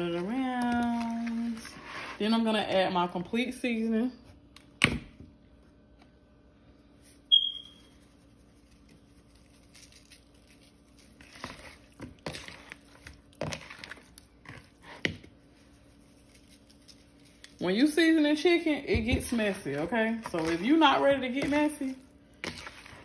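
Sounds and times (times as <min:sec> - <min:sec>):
brief high squeak: 0:07.3 - 0:07.9.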